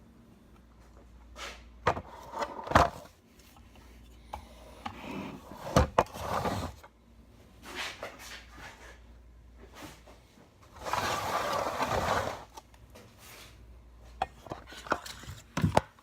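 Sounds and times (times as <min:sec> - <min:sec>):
low steady hum: 0:00.0 - 0:16.0
objects knocking and clattering: 0:14.2 - 0:16.0.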